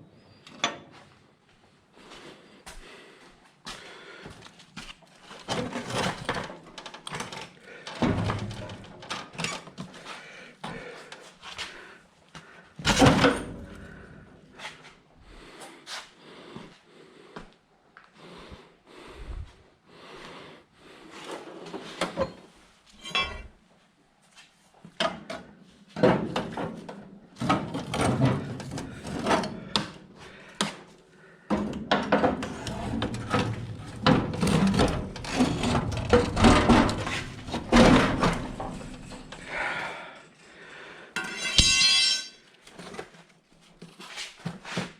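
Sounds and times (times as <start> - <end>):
hand tools clanking on metal: 23.0 - 23.5, 32.0 - 39.7, 41.2 - 42.5.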